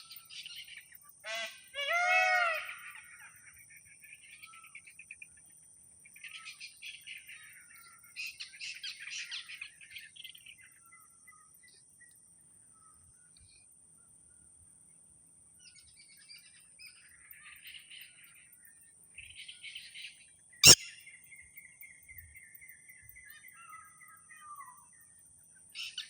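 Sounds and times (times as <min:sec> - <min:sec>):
bird trill falling in pitch: 0:20.6 - 0:21.0
birds chirping: 0:20.6 - 0:21.1.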